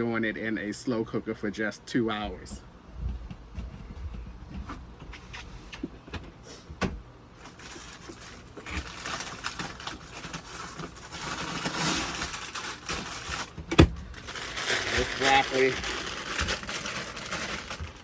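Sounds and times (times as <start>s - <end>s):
plastic bag crinkling: 7.4s - 18.0s.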